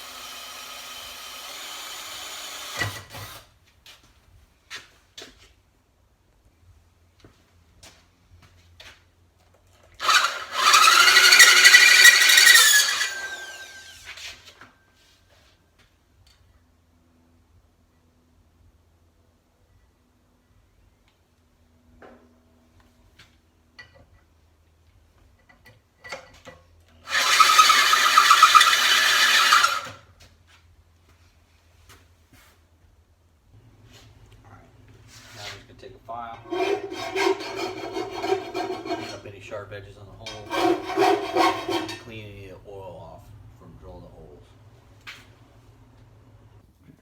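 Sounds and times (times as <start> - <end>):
drill bit squealing in metal: 10.0 - 14.1, 27.1 - 29.9, 36.3 - 39.5, 40.2 - 42.3
drill motor winding down: 10.0 - 14.2, 27.1 - 29.9.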